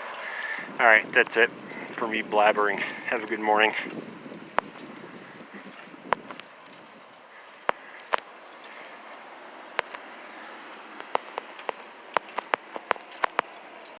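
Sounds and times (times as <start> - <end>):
sharp clicks and knocks: 11.0 - 14.0.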